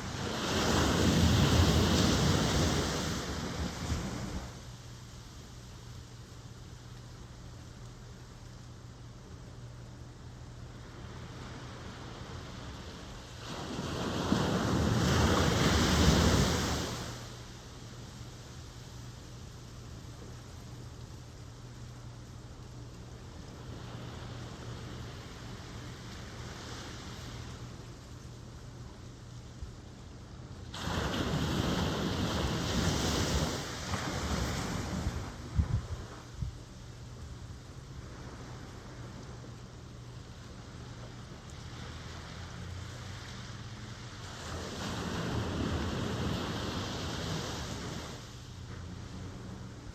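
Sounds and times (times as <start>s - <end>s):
ocean wave breaking: 0.0s - 4.6s, 11.0s - 17.5s, 30.7s - 36.3s
ocean waves breaking on shore: 0.0s - 4.7s, 10.7s - 19.5s, 23.1s - 28.9s, 30.1s - 36.4s, 37.4s - 49.9s
surf washing: 0.0s - 7.0s, 7.6s - 49.9s
low steady background hiss: 0.0s - 49.9s
wind buffeting microphone: 34.2s - 36.6s.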